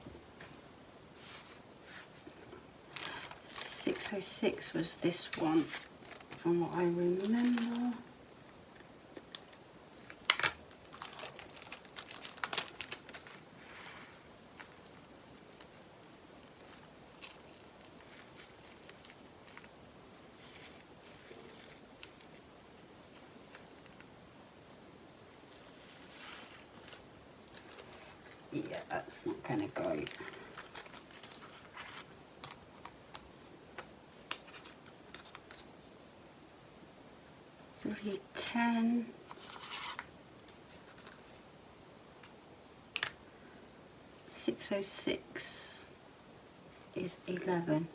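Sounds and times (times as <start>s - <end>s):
plastic bag crinkling: 2.9s - 8.1s, 9.3s - 13.8s, 14.5s - 22.5s, 26.0s - 32.6s.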